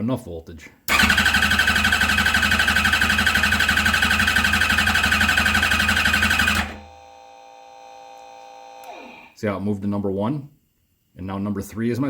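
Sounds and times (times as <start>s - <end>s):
engine cranking on starter: 0.9s - 6.8s.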